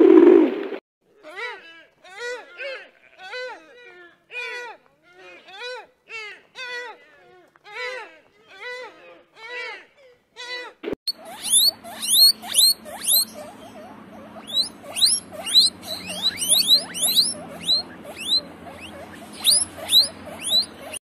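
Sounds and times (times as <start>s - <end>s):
guinea pigs squealing: 11.1s - 21.0s.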